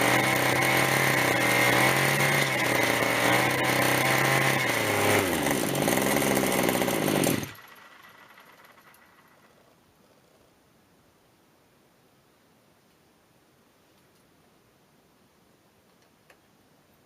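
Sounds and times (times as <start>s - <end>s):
two-stroke engine running: 0.0s - 9.5s.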